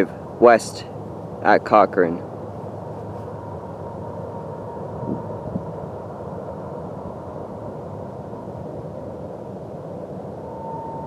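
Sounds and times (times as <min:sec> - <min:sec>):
faint high tone: 0:10.4 - 0:11.0.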